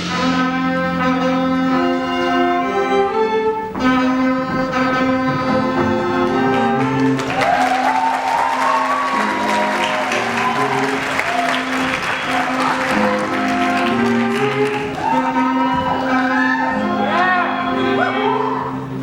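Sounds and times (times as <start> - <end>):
audience applauding and cheering: 6.2 - 16.8
orchestra sustained chords: 8.1 - 15.0.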